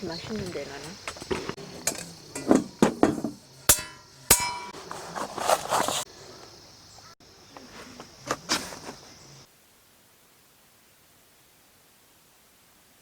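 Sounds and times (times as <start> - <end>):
crickets chirping: 0.0 - 10.6
handling clatter: 0.9 - 6.0
metallic clinks: 3.7 - 4.8.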